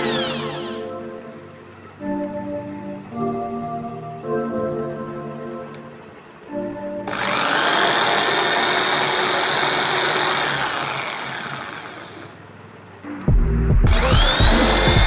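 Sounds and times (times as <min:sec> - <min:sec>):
electric drill motor spinning: 0:00.0 - 0:00.8, 0:07.1 - 0:12.4, 0:13.9 - 0:15.0.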